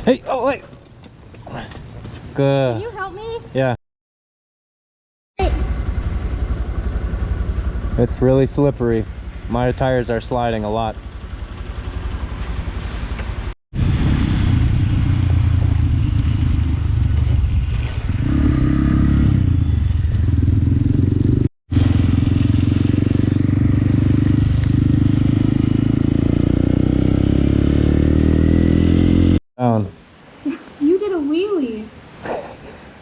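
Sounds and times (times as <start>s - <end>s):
motorcycle engine revving: 5.4s - 29.4s.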